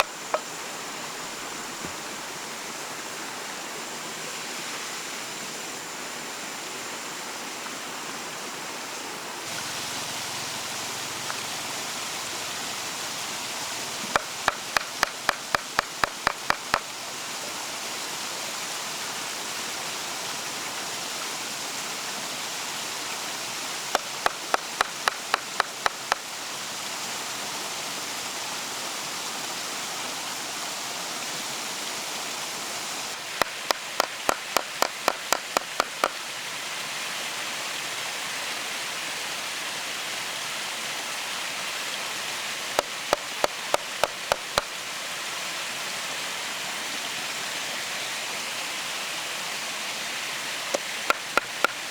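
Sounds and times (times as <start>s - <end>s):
quick sharp knocks: 14.1s - 16.8s, 33.4s - 36.2s.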